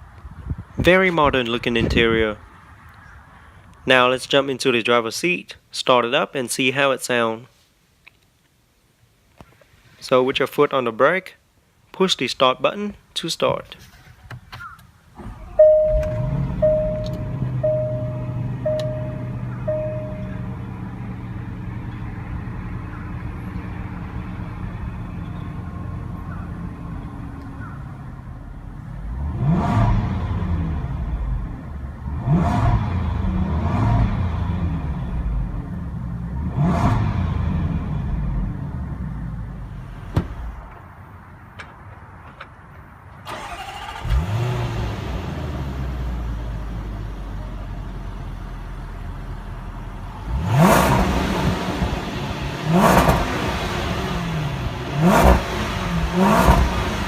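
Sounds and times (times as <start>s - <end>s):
car engine idling and revving: 15.2s - 40.8s, 43.3s - 57.0s.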